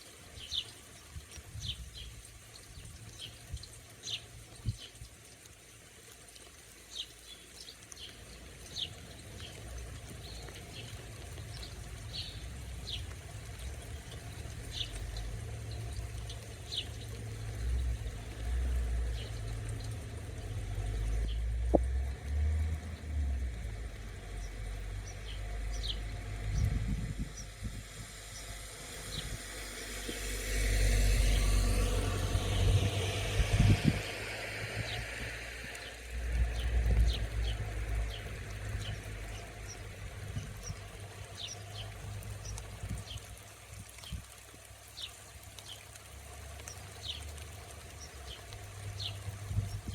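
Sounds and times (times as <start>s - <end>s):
birds chirping: 6.9s - 21.6s, 24.2s - 27.6s, 35.7s - 43.3s
road vehicle noise: 8.2s - 43.4s
low rumble: 19.3s - 38.1s.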